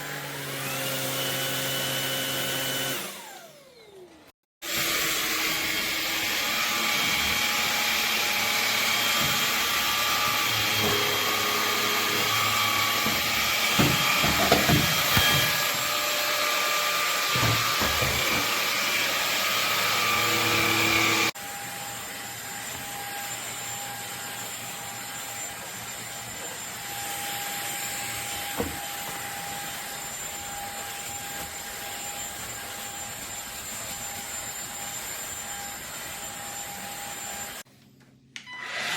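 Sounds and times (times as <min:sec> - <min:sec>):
stick vacuum whining: 0:00.0 - 0:37.6.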